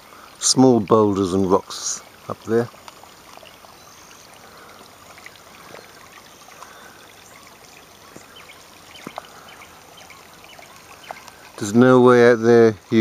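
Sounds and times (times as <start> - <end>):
creek water flowing over rock: 0.0 - 13.0.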